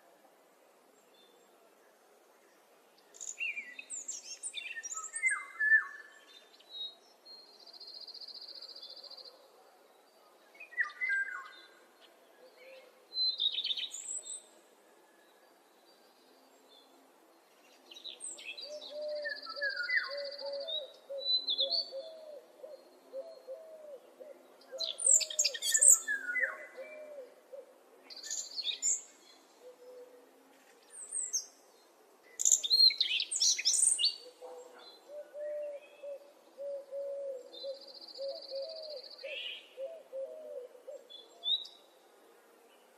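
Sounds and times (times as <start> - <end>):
birds singing: 17.5 - 30.2, 30.8 - 41.9.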